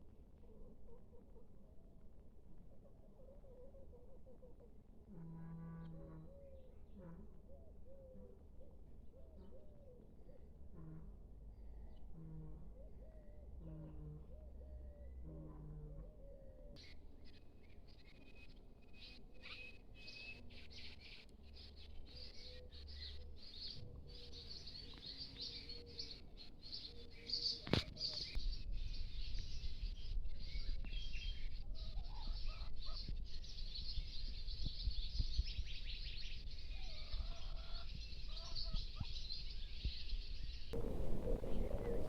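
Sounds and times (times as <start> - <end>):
finches twittering: 40.8 - 42.0
low rumble: 40.8 - 42.0.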